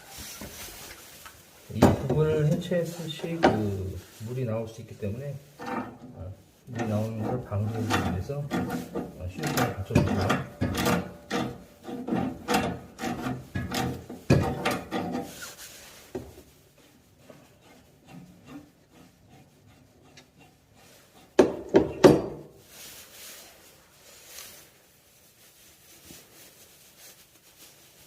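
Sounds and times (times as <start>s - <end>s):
knocks and scraping on pipe: 1.7s - 3.9s, 5.4s - 22.6s.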